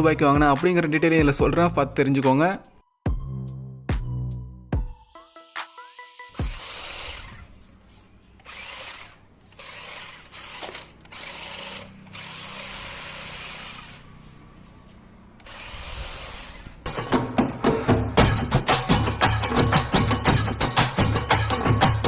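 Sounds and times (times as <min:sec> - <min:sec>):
toy car electric motor whirring: 0:06.3 - 0:07.6, 0:08.4 - 0:14.3, 0:15.4 - 0:16.8.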